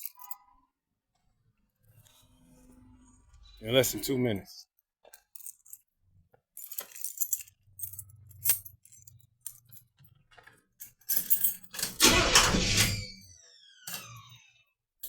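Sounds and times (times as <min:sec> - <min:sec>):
keys jangling: 0:00.0 - 0:00.4, 0:06.6 - 0:12.2.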